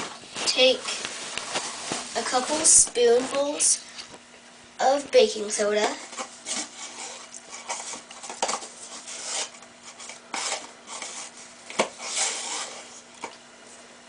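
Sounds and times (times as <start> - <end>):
spoon scraping powder: 6.0 - 11.4, 12.0 - 13.0.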